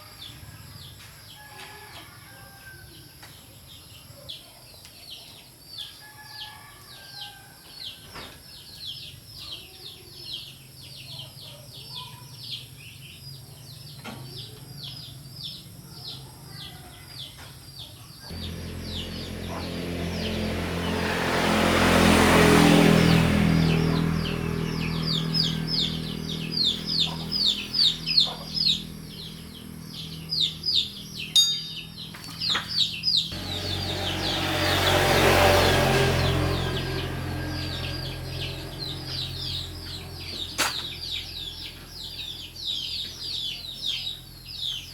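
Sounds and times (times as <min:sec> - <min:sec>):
motor humming: 0:18.3 - 0:22.2, 0:33.4 - 0:39.4
small bird chirping: 0:23.1 - 0:44.9.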